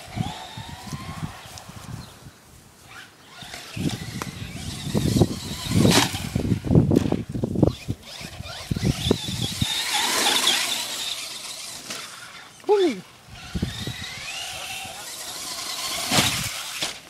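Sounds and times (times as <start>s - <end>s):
high wavering motor whine: 0.0s - 2.2s, 2.8s - 17.0s
rc car thumping over rough ground: 2.9s - 12.4s, 13.4s - 17.0s.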